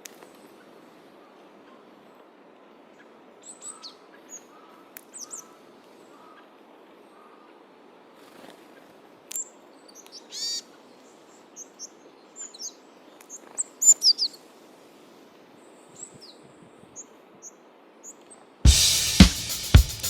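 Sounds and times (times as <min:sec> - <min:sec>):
faint outdoor hiss: 0:00.0 - 0:20.0
drum-led music: 0:18.7 - 0:20.0.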